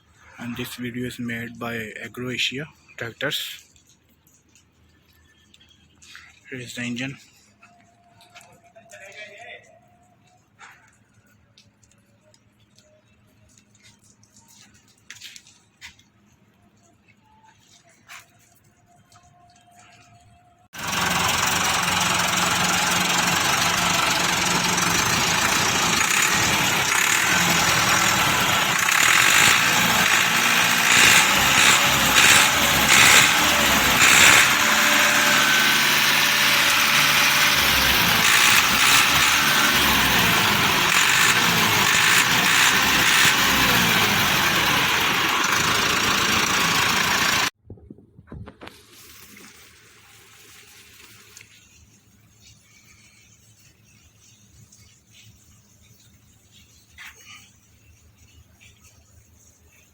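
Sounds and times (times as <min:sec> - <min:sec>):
tractor diesel engine revving: 0:20.8 - 0:47.5.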